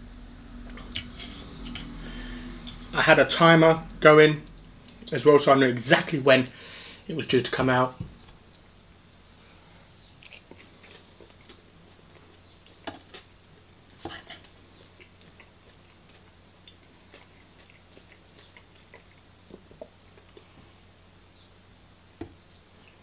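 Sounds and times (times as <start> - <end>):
low steady hum: 0.0 - 23.0
chewing food: 10.2 - 20.6.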